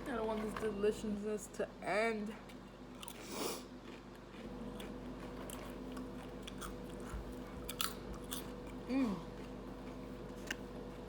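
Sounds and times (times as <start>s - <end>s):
steady low hum: 0.0s - 11.0s
chewing with wet crunches: 2.4s - 11.0s.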